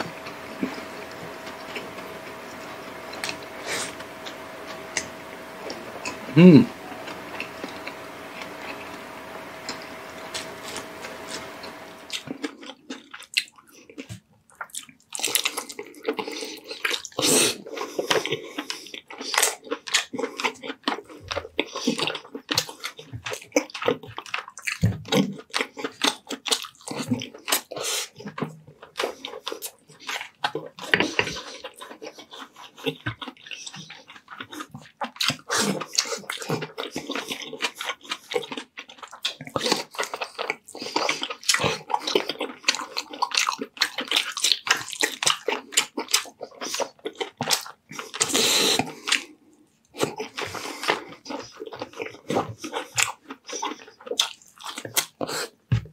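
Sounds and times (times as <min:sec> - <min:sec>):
chewing and lip-smacking: 0:12.1 - 0:49.3, 0:50.0 - 0:55.6.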